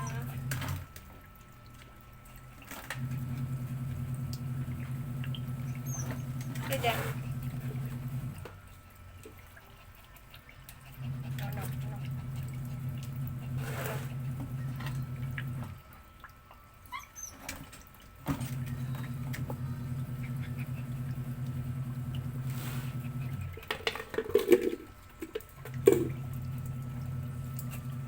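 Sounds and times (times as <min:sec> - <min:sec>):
washing machine motor humming: 0:00.0 - 0:01.3, 0:02.8 - 0:09.2, 0:11.0 - 0:16.1, 0:18.2 - 0:25.0, 0:25.6 - 0:28.0.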